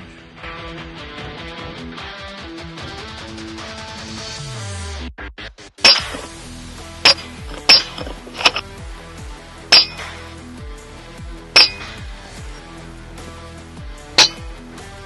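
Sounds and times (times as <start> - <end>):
background music: 5.8 - 15.0.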